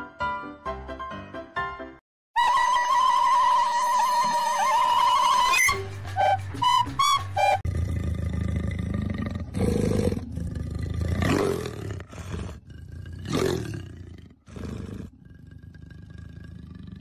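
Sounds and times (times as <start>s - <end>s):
leopard growling and snarling: 7.7s - 17.0s.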